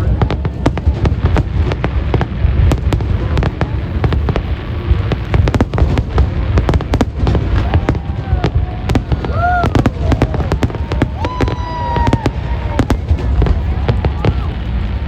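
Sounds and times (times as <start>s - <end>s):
continuous low rumble: 0.0s - 15.0s
fireworks bangs and crackles: 0.0s - 15.0s.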